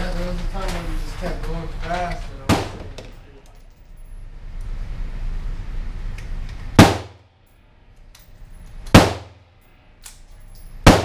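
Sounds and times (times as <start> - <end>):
rifle shots echoing: 6.8 - 7.2, 8.9 - 9.4.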